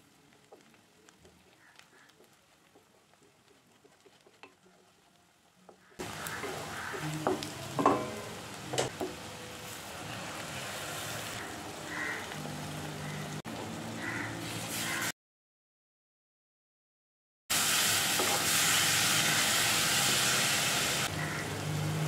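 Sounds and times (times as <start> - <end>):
food sizzling in oil: 0.0 - 15.1, 17.5 - 22.0
wooden spatula scraping pan: 2.2 - 5.1, 5.7 - 9.0.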